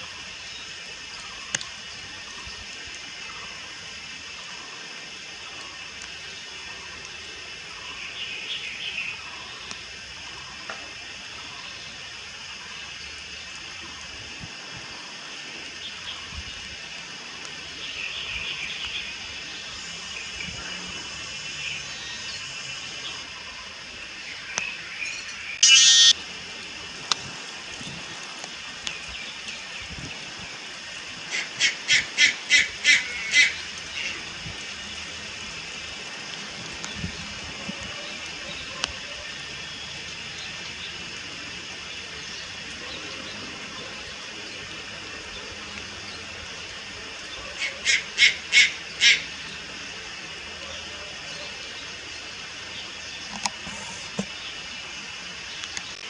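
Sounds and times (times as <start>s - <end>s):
steady high hiss: 0.0s - 56.0s
heron calls: 25.6s - 26.1s, 31.3s - 34.2s, 47.6s - 49.4s.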